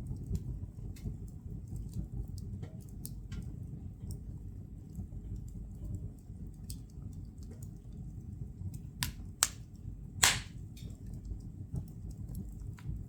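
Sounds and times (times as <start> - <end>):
fire rumbling and crackling: 0.0 - 13.0
sharp pops of burning wood: 9.0 - 11.0.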